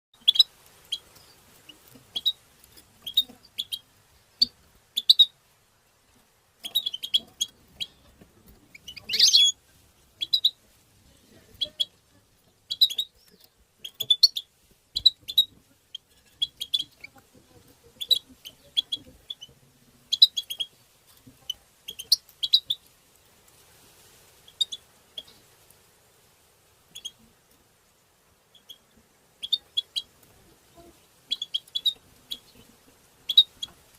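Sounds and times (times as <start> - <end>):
finch chirping call notes: 0.2 - 1.4, 2.1 - 2.4, 3.0 - 3.8, 4.4 - 5.3, 6.6 - 8.1, 8.7 - 9.6, 10.2 - 10.6, 12.7 - 17.1, 18.0 - 20.7, 21.9 - 22.8, 27.0 - 27.2, 28.5 - 30.1, 31.3 - 32.6, 33.3 - 33.7.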